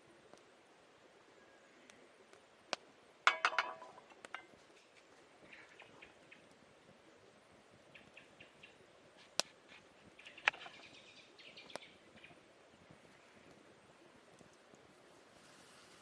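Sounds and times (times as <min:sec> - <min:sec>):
birds chirping: 0:04.9 - 0:14.8.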